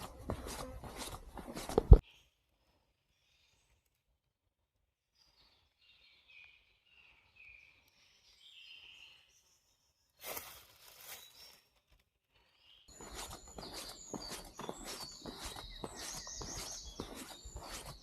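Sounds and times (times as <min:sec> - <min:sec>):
footsteps on trail: 0:00.0 - 0:02.0, 0:12.9 - 0:18.0
faint whistled bird song: 0:02.0 - 0:03.9, 0:05.1 - 0:18.0.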